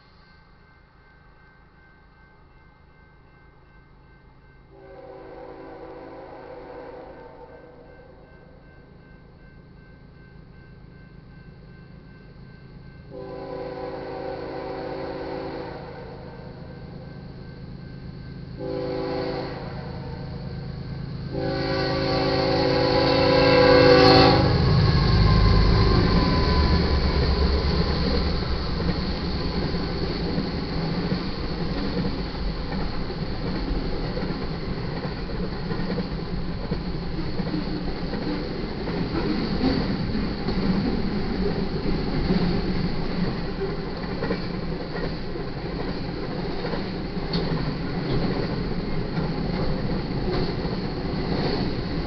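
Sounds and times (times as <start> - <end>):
train horn: 4.7 - 8.3, 13.1 - 17.0, 18.6 - 28.8
wheels rumbling on rail: 4.7 - 52.0
diesel locomotives rumbling: 4.8 - 52.0
sharp clacks of rail cars: 21.3 - 52.0.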